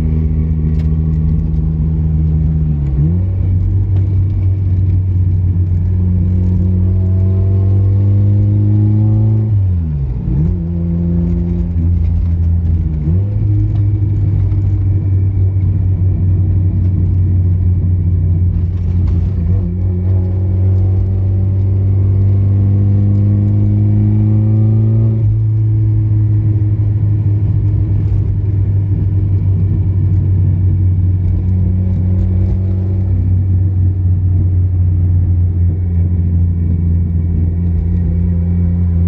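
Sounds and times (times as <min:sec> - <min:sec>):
car engine revving: 0:00.0 - 0:39.0
road rumble: 0:00.0 - 0:39.0.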